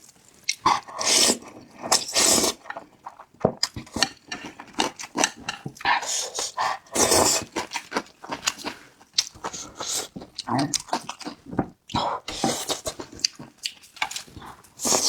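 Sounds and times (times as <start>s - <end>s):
wet chewing: 0.4s - 15.0s
noisy slurps: 0.5s - 3.2s, 14.4s - 15.0s.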